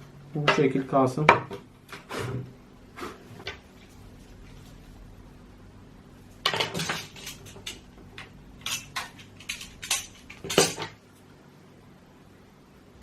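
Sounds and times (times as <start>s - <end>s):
hard objects clicking and clattering: 6.4s - 11.0s.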